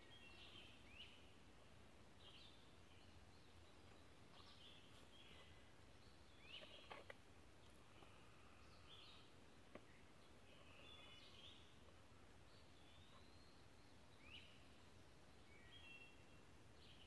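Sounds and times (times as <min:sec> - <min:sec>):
faint bird chirps and trills: 0:00.0 - 0:17.0.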